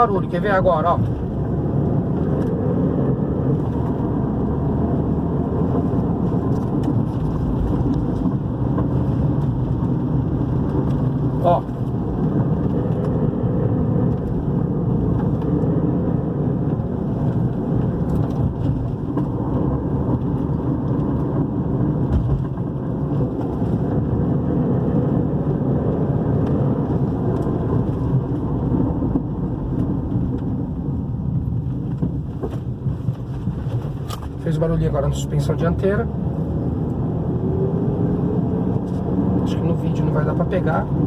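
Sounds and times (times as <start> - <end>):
road and tyre noise in car: 0.0 - 41.0.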